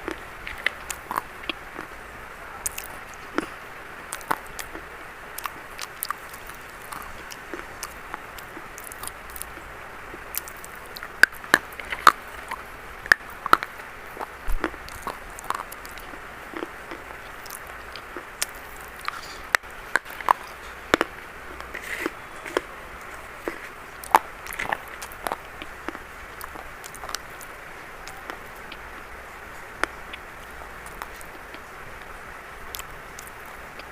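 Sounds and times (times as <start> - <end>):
steady hiss: 0.0 - 33.9
chalk crunching: 14.2 - 28.8.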